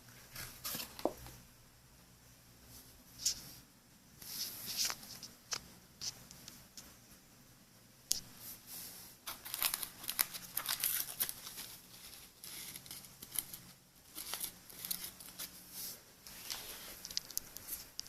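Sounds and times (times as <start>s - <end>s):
packaging crinkling and rustling: 0.3s - 1.3s, 9.2s - 15.5s.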